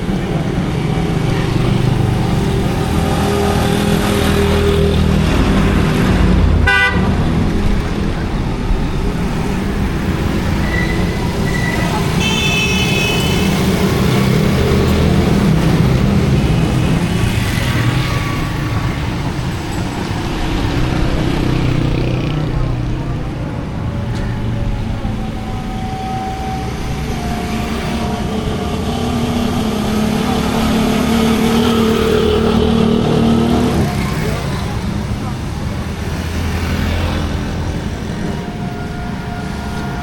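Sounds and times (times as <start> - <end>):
vehicle engines running: 0.0 - 40.0
car horns tooting: 6.6 - 7.2, 10.6 - 14.5.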